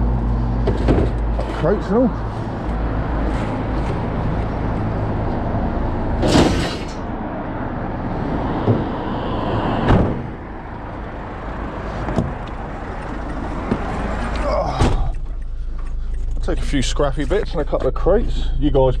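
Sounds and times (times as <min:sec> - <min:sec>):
knocks of crates being loaded: 0:00.6 - 0:01.7, 0:06.2 - 0:07.0
steady low rumble: 0:06.9 - 0:19.0.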